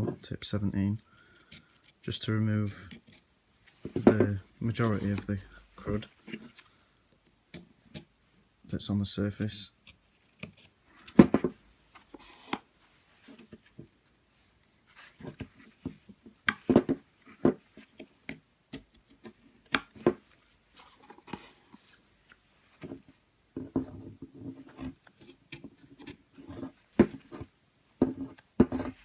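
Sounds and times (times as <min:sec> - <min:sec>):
plastic scraper scraping carbon: 0:24.4 - 0:29.0.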